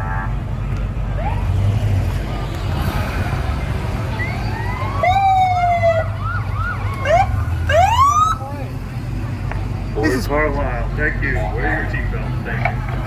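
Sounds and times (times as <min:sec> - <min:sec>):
steady low rumble: 0:00.3 - 0:07.8
police sirens wailing and yelping: 0:01.1 - 0:09.1, 0:09.8 - 0:13.0.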